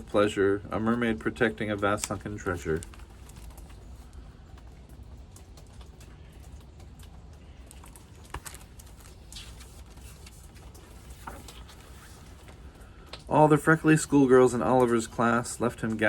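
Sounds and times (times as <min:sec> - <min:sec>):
low steady hum: 0:00.0 - 0:16.0
faint clicks and taps: 0:01.3 - 0:13.3.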